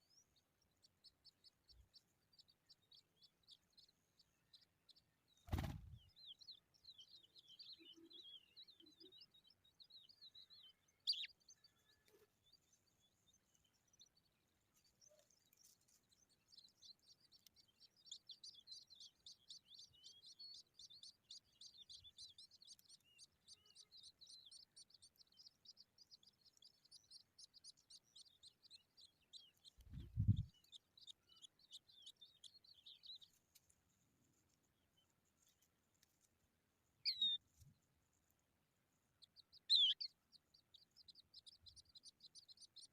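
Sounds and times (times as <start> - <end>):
skylarks chirping: 0.0 - 36.2, 36.9 - 42.9.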